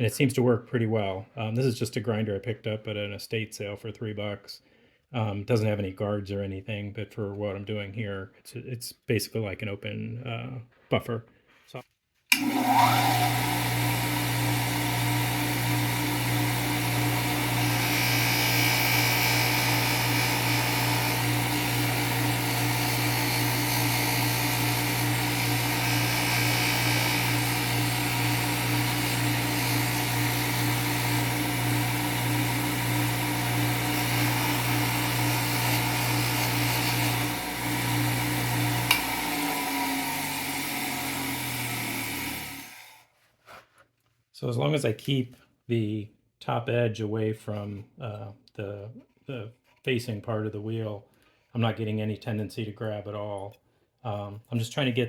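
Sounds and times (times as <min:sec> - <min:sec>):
bench grinder motor hum: 0:12.3 - 0:43.1.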